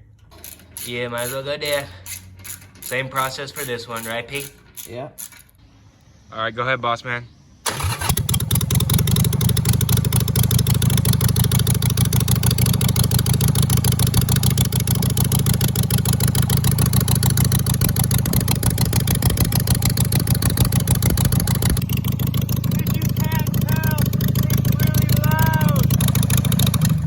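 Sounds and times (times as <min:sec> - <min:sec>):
loud motorcycle exhaust pulses: 0:08.2 - 0:27.0.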